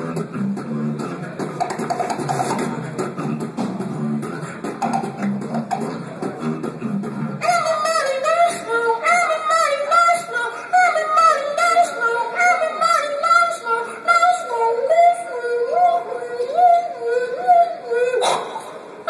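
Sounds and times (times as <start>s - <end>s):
beatboxed mouth percussion: 0.0s - 9.2s, 18.2s - 18.8s
beatboxer voicing melody: 0.0s - 19.0s.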